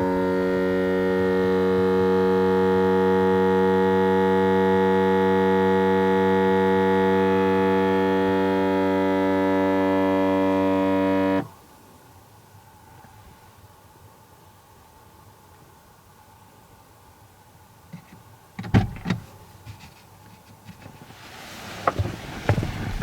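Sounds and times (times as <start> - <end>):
low buzzing car drone: 0.0 - 11.6, 21.8 - 23.0.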